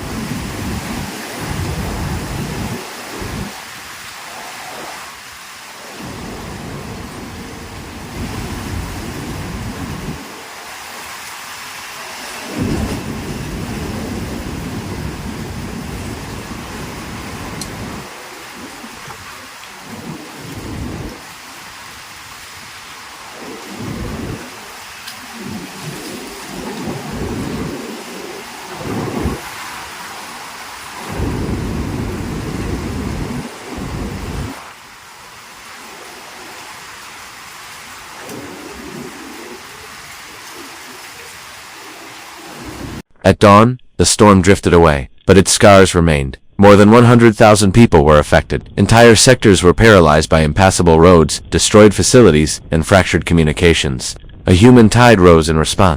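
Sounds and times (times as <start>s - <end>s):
thunder rumbling: 0.0s - 3.7s, 5.8s - 11.2s, 12.0s - 43.0s
heavy rain hissing: 0.0s - 43.1s.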